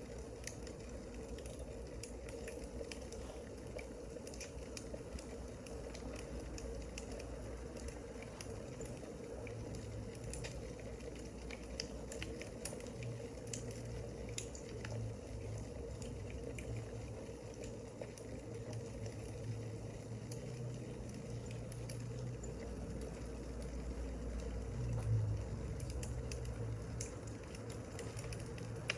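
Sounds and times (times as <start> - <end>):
steady hiss and hum: 0.0 - 28.9
wood fire crackling: 0.0 - 28.9
fire pops and snaps: 0.1 - 15.0, 24.8 - 28.9.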